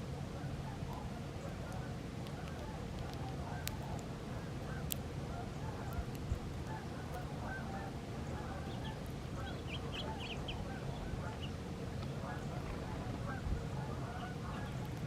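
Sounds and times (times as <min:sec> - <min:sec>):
flock of birds calling: 0:06.7 - 0:15.0.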